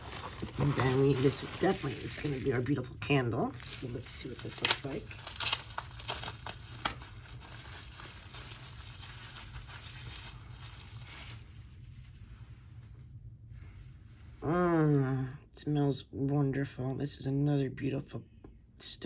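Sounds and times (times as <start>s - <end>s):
wrapping crinkling and tearing: 0.0s - 12.3s.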